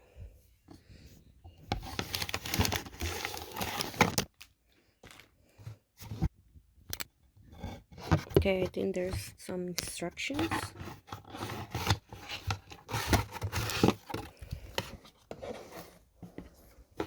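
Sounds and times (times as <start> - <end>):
packaging crinkling and rustling: 1.7 - 5.3, 10.4 - 15.0.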